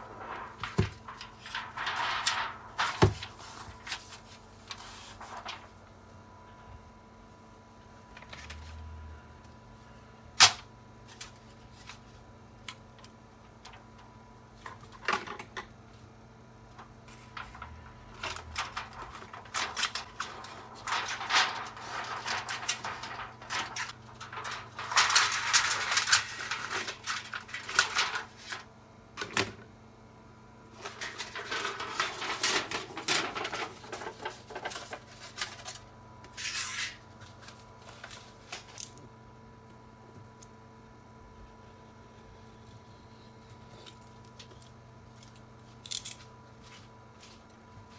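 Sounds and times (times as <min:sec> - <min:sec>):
aluminum foil crinkling: 0:00.0 - 0:05.8, 0:16.8 - 0:28.7, 0:30.8 - 0:38.9.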